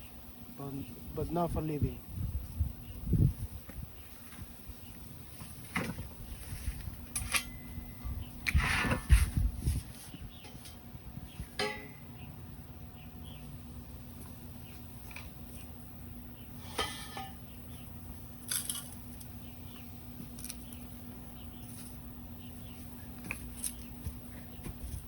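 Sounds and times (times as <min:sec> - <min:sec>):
metal clinks and knocks: 0:11.6 - 0:12.2.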